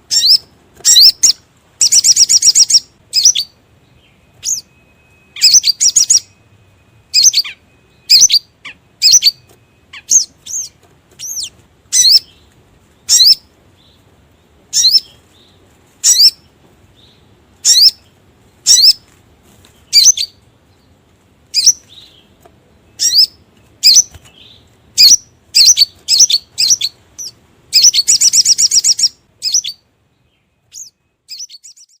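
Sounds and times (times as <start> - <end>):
sharp high bird chirps: 0.1 - 12.4, 13.0 - 13.5, 14.7 - 15.2, 16.0 - 19.1, 19.8 - 20.4, 21.5 - 22.3, 22.9 - 29.8, 30.6 - 32.0
fast rattling bird trill: 4.4 - 6.3, 7.1 - 12.4, 14.7 - 15.2, 16.0 - 16.5, 23.0 - 29.8.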